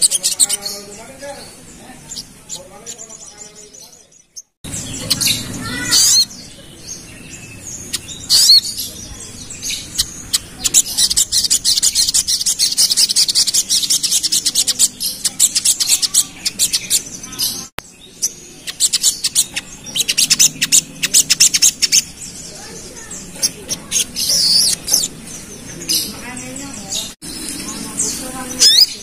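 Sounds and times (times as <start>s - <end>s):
songbird chattering chirps: 0.0s - 29.0s
bird sweeping calls: 4.7s - 6.5s, 18.4s - 29.0s.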